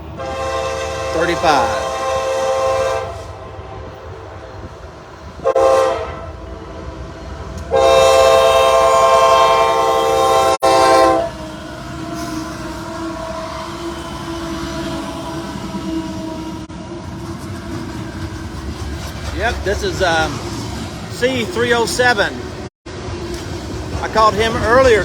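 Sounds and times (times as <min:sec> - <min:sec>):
locomotive air horn: 0:00.0 - 0:04.8, 0:05.4 - 0:06.5, 0:07.6 - 0:16.7
freight train rail rumble: 0:00.0 - 0:25.0.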